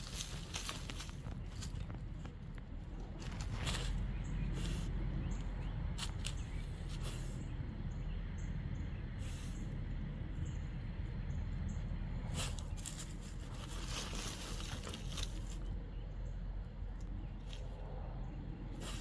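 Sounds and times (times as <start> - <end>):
dog digging in dirt: 0.0 - 7.4, 12.2 - 15.9, 18.6 - 19.0
steady low rumble: 0.0 - 19.0.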